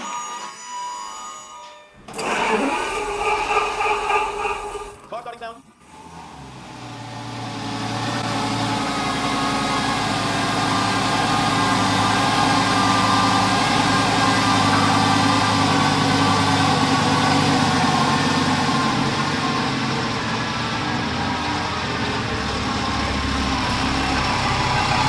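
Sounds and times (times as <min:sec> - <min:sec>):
car engine idling: 0:06.1 - 0:25.0.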